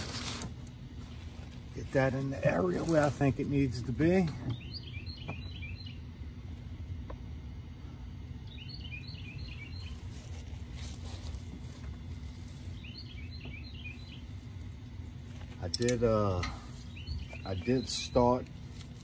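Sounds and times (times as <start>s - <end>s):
birds chirping: 0.0s - 19.0s
faint hum: 0.0s - 19.0s
low outdoor rumble: 0.0s - 19.0s.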